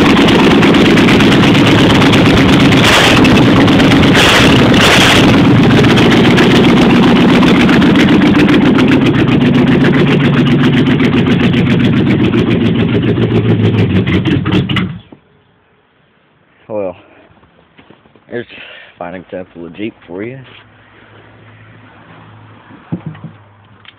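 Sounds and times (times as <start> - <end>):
engine idling and stalling: 0.0 - 15.2.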